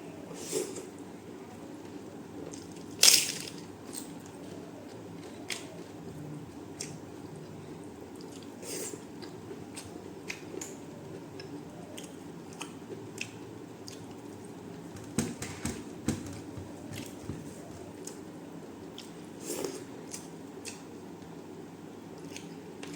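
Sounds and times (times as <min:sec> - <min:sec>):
person chewing: 0:08.2 - 0:10.8.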